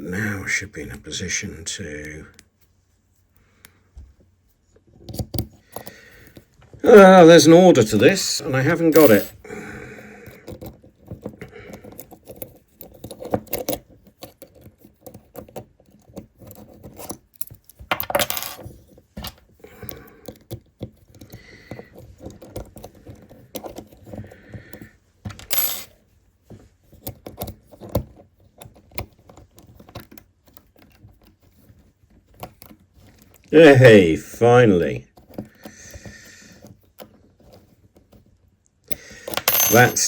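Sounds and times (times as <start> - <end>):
small metal parts clinking: 8.9 - 9.4, 25.4 - 25.9, 38.9 - 40.0
metal parts rattling: 39.2 - 40.0.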